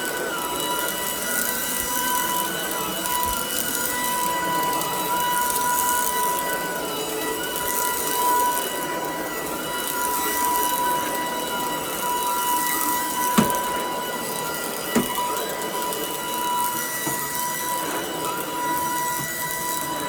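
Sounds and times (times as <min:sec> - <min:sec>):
stick vacuum running: 0:09.6 - 0:20.0.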